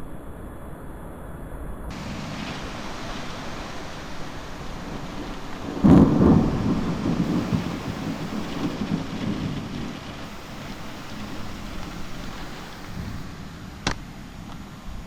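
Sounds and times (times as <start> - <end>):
thunder clap and rumble: 1.9 - 13.2
heavy rain hiss: 1.9 - 15.0.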